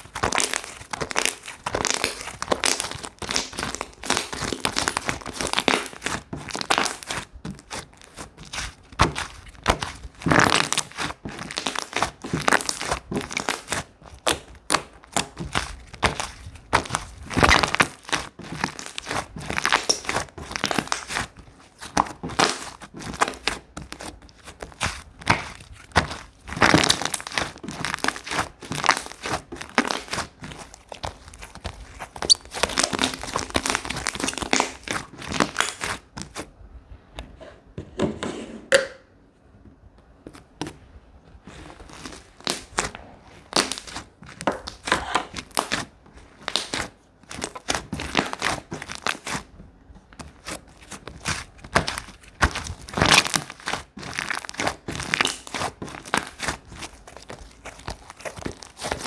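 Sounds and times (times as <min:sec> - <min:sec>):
slime squeezed crackling: 0:00.0 - 0:36.4, 0:41.5 - 0:49.5.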